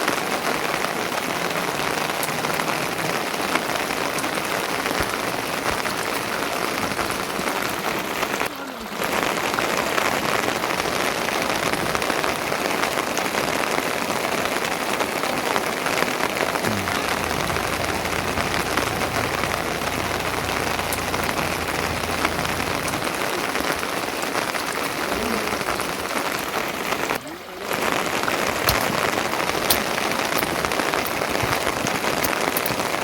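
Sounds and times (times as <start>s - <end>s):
heavy rain pattering: 0.0s - 33.0s
low rumble: 16.7s - 23.9s.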